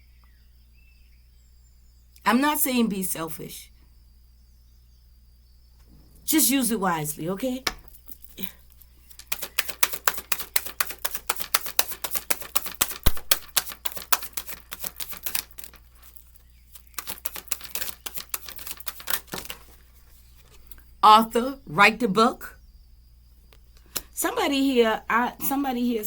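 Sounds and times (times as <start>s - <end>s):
cards being shuffled: 7.7s - 20.8s.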